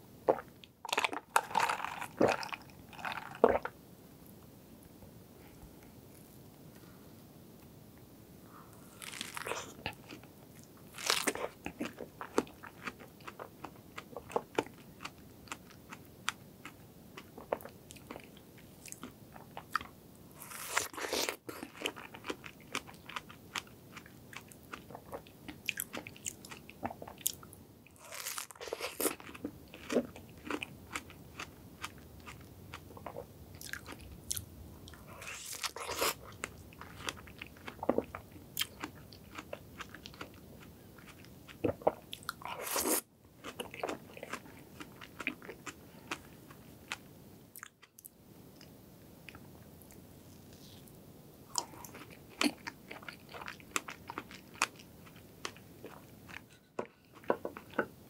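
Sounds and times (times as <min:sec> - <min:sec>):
biting and chewing strawberries: 0:09.0 - 0:10.2, 0:28.0 - 0:34.4, 0:35.0 - 0:40.4.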